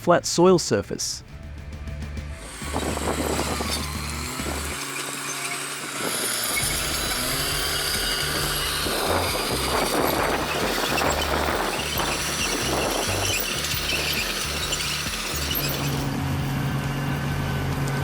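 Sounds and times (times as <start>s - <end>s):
background music with bass: 0.0s - 5.2s, 5.8s - 18.0s
earthmoving machine diesel engine: 1.4s - 18.0s.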